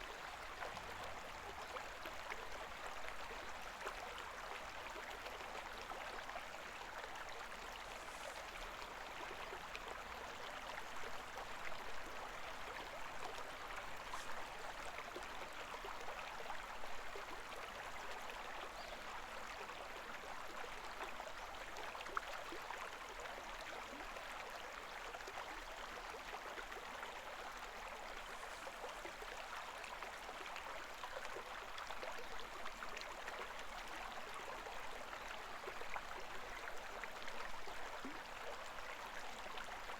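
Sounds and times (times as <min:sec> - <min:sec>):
shallow river babbling: 0:00.0 - 0:39.9.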